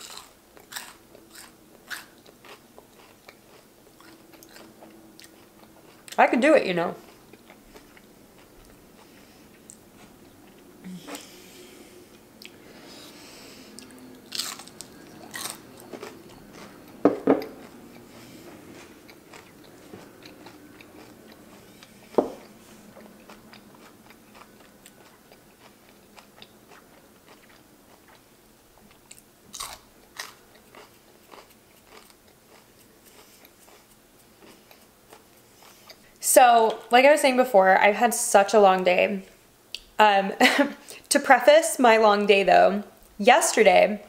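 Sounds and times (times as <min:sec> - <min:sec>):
sharp crunches while chewing: 0:00.0 - 0:06.2, 0:13.8 - 0:36.0
wet chewing mouth sounds: 0:00.0 - 0:06.2, 0:07.0 - 0:36.1.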